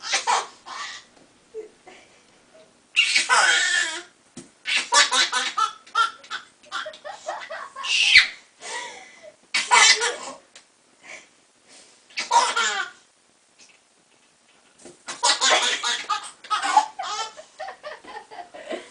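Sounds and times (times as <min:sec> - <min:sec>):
baby laughing: 0:00.0 - 0:01.1, 0:03.0 - 0:08.4, 0:09.6 - 0:10.4, 0:12.2 - 0:13.0, 0:15.1 - 0:18.3
baby squealing: 0:00.0 - 0:01.1, 0:03.0 - 0:05.6, 0:07.8 - 0:08.4.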